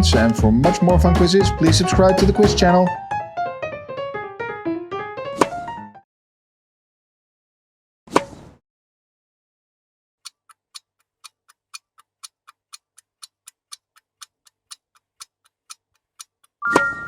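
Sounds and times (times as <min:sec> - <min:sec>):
fast clock-style ticking: 0:00.0 - 0:02.8, 0:10.3 - 0:16.6.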